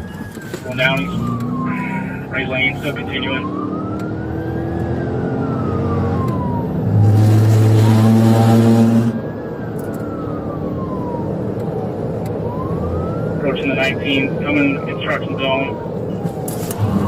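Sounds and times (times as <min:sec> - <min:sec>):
police siren wailing: 0:00.0 - 0:17.0
road and engine noise: 0:00.0 - 0:17.0
low steady horn blare: 0:06.9 - 0:09.2.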